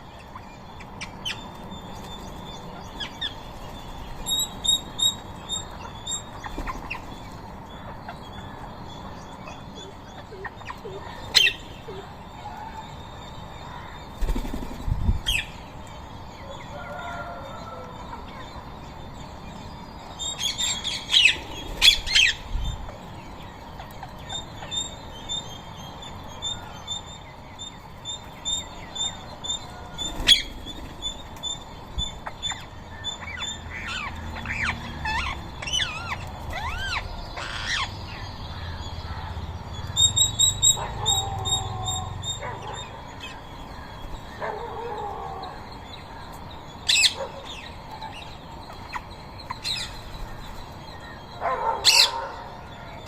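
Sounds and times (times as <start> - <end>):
parakeets screeching: 20.4 - 22.5, 29.0 - 45.8, 46.8 - 52.5.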